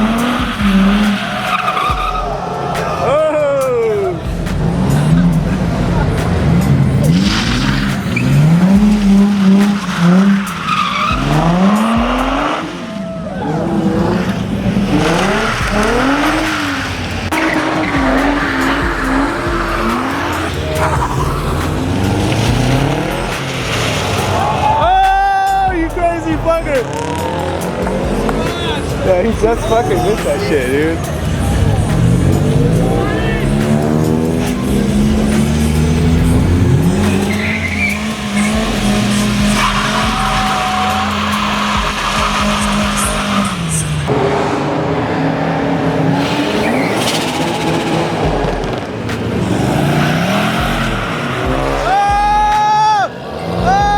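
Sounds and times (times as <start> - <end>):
tyres squealing: 0.0 - 44.1
car engine running: 0.0 - 52.6.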